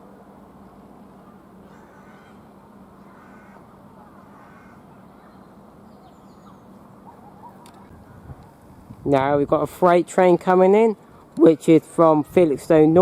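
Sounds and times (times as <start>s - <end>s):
station background hum: 0.0s - 13.0s
harsh bird calls: 1.1s - 8.4s.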